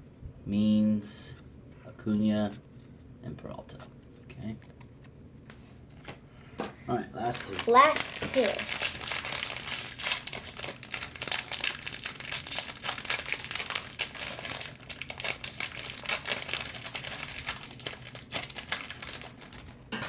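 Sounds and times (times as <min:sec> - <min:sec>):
card pack wrapper crinkling: 0:07.2 - 0:19.8.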